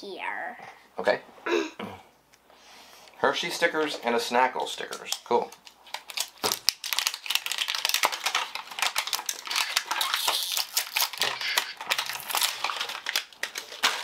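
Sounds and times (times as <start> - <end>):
plastic packaging crinkling: 4.8 - 14.0.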